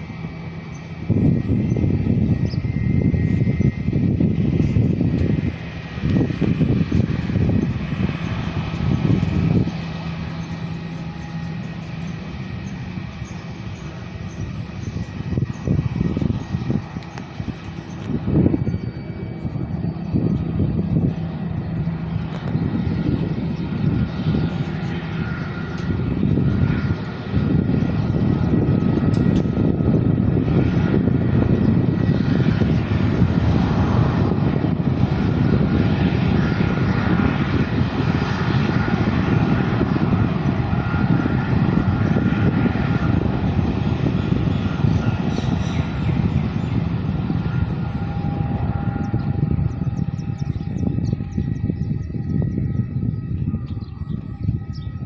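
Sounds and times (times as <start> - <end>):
faint high engine whine: 0.0 - 55.0
jet engines rumbling: 0.0 - 55.0.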